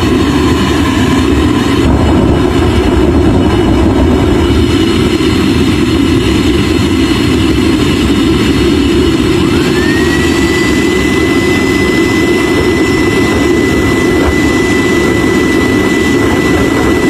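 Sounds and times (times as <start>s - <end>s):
jet engine running: 0.0s - 17.0s.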